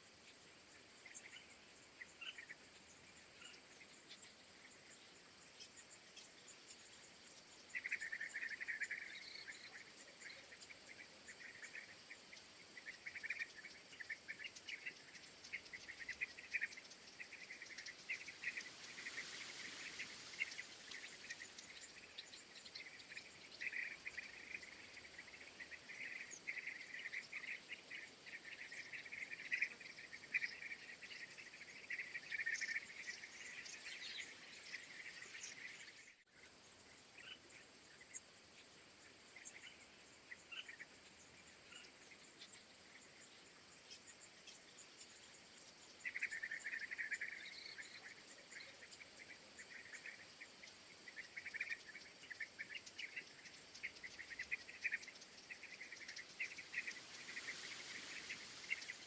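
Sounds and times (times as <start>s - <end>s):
insects chirping: 0.0s - 59.0s
soft rush of noise: 0.0s - 59.0s.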